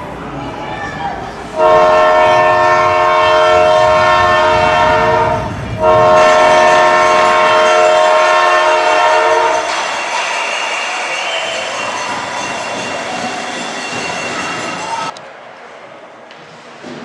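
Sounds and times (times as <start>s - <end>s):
air horn blasts: 1.6s - 9.7s.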